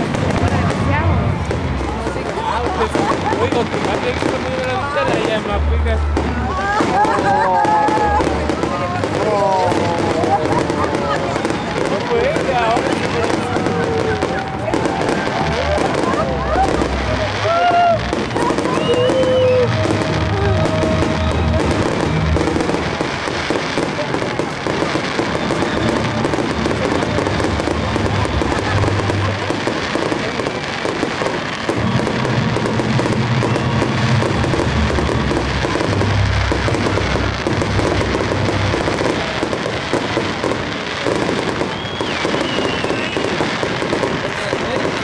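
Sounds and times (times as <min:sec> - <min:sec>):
music playing: 0:00.0 - 0:41.4
fireworks crackling and popping: 0:00.0 - 0:45.0.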